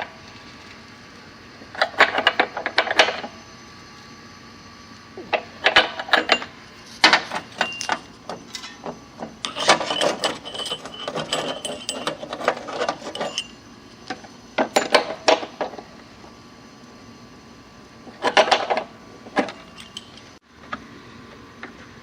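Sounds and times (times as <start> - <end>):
metallic clicks and rattles of tools: 9.4 - 13.6, 19.4 - 20.3.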